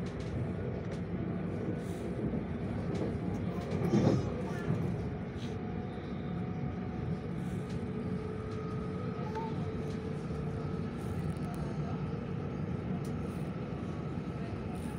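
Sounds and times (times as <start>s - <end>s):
train wheels rumbling on track: 0.0s - 14.9s.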